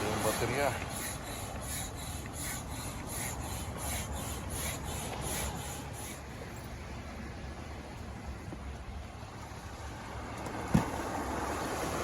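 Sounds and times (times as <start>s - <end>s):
hand air pump hissing strokes: 0.0s - 6.4s.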